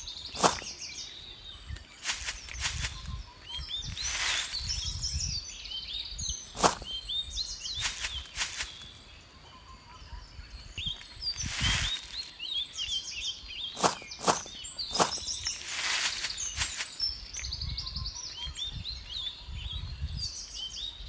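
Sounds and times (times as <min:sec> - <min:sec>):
birds chirping: 0:00.0 - 0:21.0
metal shovel scraping sand: 0:13.8 - 0:17.0.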